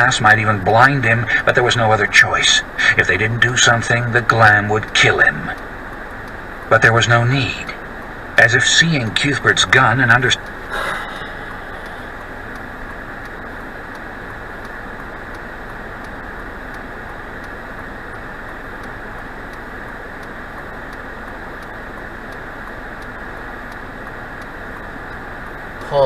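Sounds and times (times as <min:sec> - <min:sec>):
road and engine noise in cabin: 0:00.0 - 0:26.0
faint regular ticks: 0:00.3 - 0:26.0.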